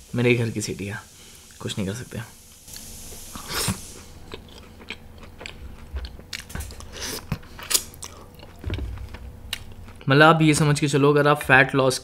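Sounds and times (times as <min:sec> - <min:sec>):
person biting and chewing food: 0:02.7 - 0:10.1.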